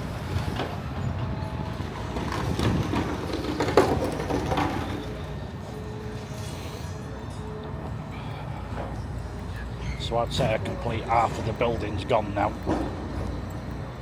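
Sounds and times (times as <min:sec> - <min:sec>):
short knocks and clanks: 0:00.3 - 0:05.5, 0:09.9 - 0:14.0.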